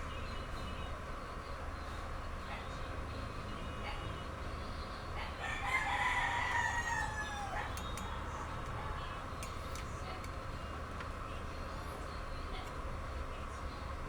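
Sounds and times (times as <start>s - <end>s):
rooster crowing: 5.4s - 7.8s
faint clicks: 7.7s - 8.8s.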